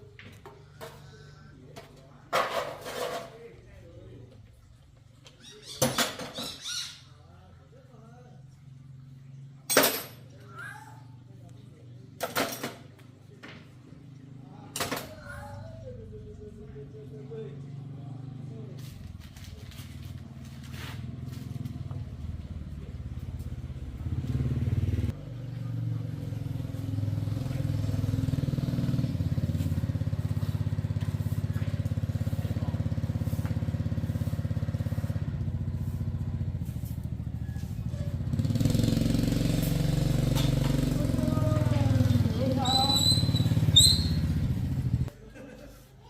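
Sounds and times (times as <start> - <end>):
motorcycle engine running: 15.4 - 45.1.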